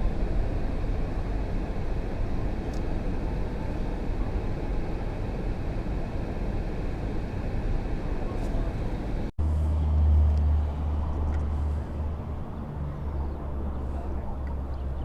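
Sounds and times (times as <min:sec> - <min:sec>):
low rumbling outdoor noise: 0:00.0 - 0:15.0.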